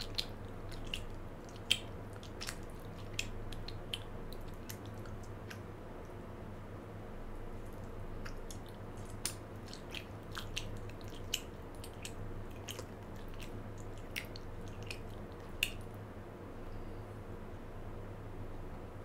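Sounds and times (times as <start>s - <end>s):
open-mouthed chewing: 0.0s - 5.7s, 7.6s - 16.0s
faint steady hum: 0.0s - 19.0s.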